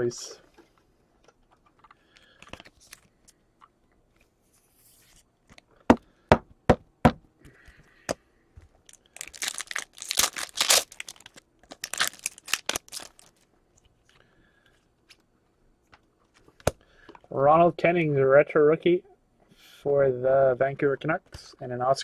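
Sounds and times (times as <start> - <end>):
foil wrapper tearing and crinkling: 8.9 - 13.4.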